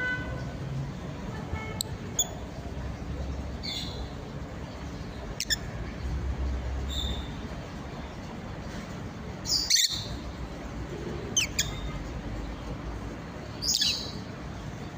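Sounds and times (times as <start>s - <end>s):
bird chirping: 1.8s - 5.7s, 6.8s - 7.4s, 9.4s - 10.4s, 11.3s - 12.7s, 13.5s - 14.9s.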